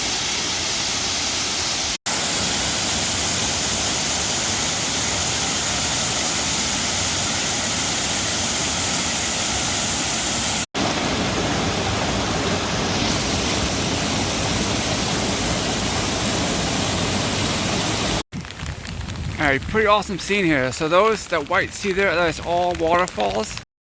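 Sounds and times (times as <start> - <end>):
waterfall roaring: 0.0 - 18.2.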